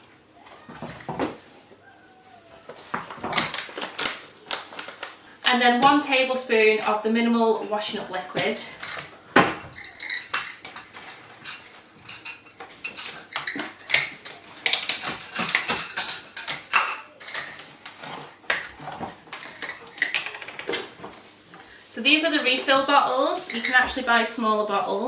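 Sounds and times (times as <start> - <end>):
utensils and dishes clinking: 5.8 - 21.6, 22.3 - 24.8.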